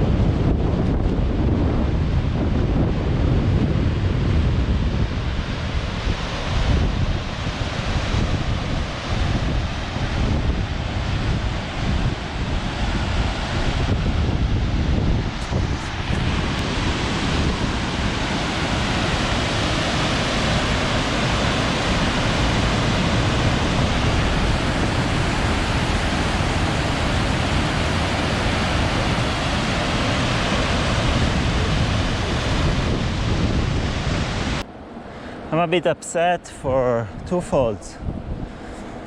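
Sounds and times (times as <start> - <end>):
wind rumble on microphone: 0.0 - 34.8, 37.0 - 39.0
waterfall rushing: 15.4 - 34.6.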